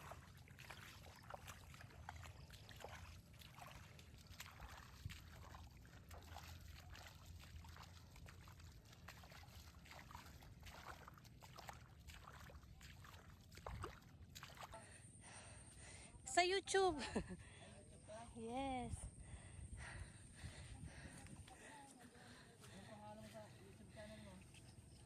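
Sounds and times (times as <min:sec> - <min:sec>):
water trickling and dripping: 0:00.0 - 0:14.8.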